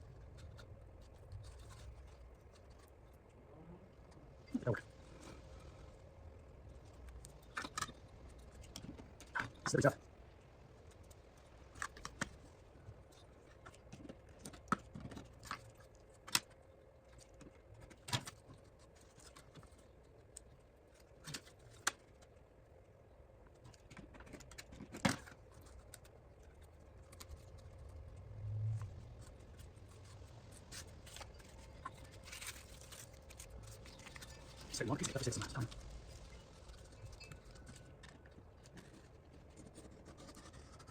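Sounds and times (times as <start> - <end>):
low hum: 25.3 - 40.9.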